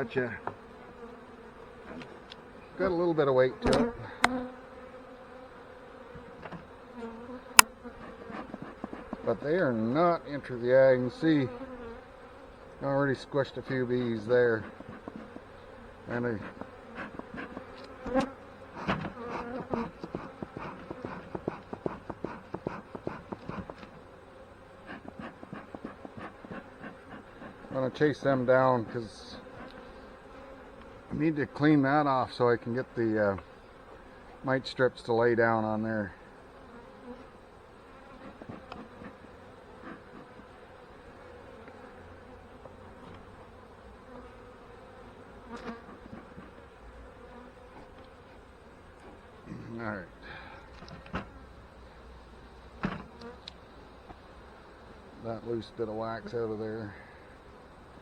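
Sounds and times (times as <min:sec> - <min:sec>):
honey bees buzzing: 0:00.0 - 0:58.0
hive tool scraping wax: 0:03.6 - 0:10.2, 0:13.4 - 0:32.0, 0:36.6 - 0:50.0, 0:52.1 - 0:58.0.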